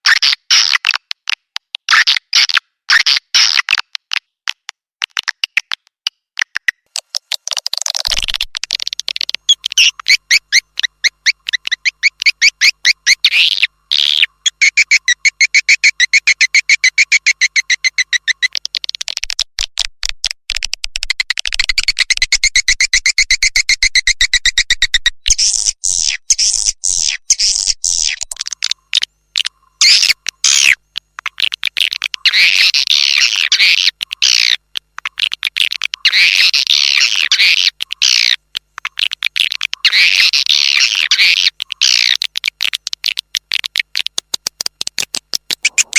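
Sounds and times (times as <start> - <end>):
high chirps and twittering trills: 8.1 - 18.7, 25.3 - 42.2, 45.6 - 45.9.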